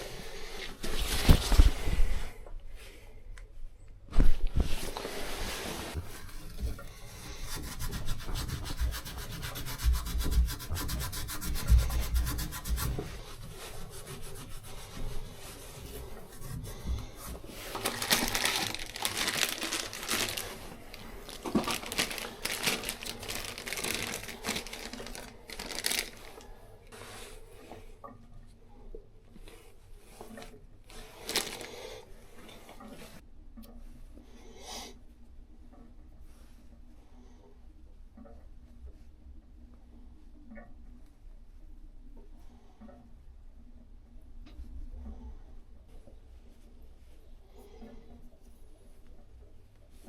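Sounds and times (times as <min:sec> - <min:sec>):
hand scraping a hard surface: 0:04.6 - 0:27.8.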